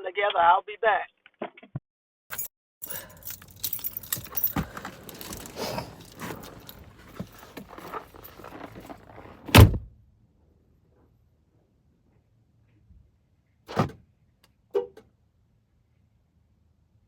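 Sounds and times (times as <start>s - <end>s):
keys jangling: 2.3s - 9.0s.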